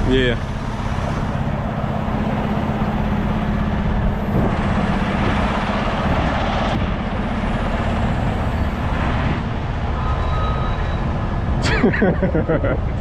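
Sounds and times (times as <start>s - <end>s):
truck diesel engine running: 0.0s - 10.1s
rushing noise: 0.0s - 13.0s.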